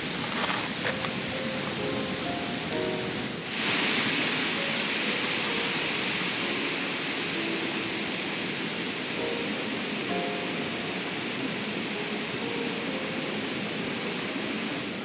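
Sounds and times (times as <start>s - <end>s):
river rushing: 0.0s - 15.0s
faint background music: 0.1s - 15.0s.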